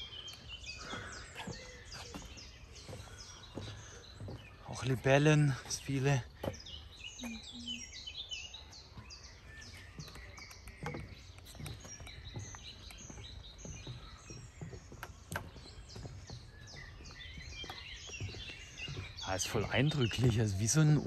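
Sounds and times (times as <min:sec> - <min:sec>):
small birds chirping and singing: 0:00.0 - 0:21.0.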